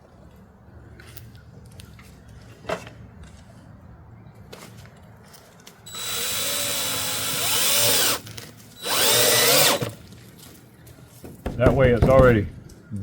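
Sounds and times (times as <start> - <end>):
cordless drill whining: 5.9 - 8.2, 8.8 - 10.0.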